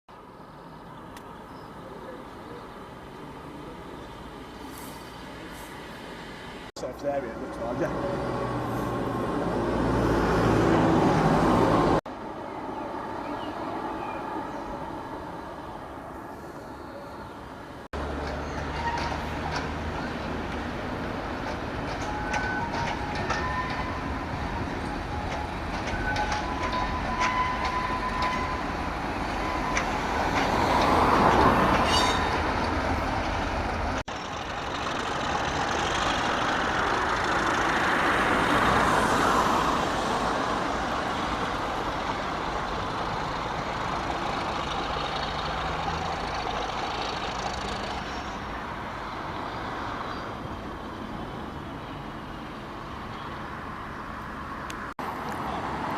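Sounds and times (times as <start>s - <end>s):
trains passing: 0.8s - 55.9s.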